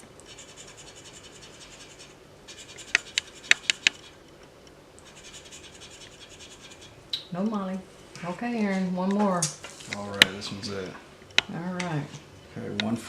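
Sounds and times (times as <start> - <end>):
ticket being scratched: 0.3 - 4.2, 5.0 - 7.0
sharp clicks: 2.8 - 5.1.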